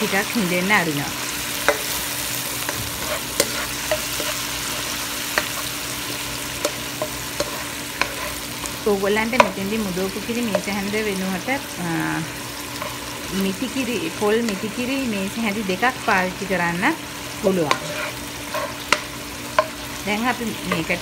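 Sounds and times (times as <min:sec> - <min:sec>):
onions sizzling in oil: 0:00.0 - 0:21.0
wooden spatula scraping pan: 0:02.8 - 0:05.7, 0:07.0 - 0:08.4, 0:17.7 - 0:19.1.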